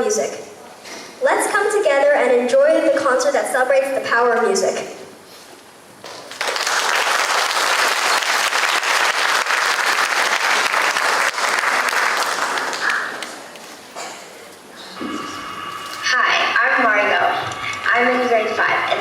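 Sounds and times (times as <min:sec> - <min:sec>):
audience applauding: 0:06.2 - 0:13.6.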